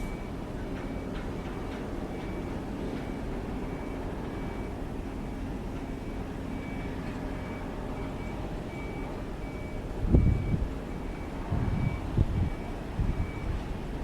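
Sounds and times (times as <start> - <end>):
faint high beep: 0.0 - 1.0.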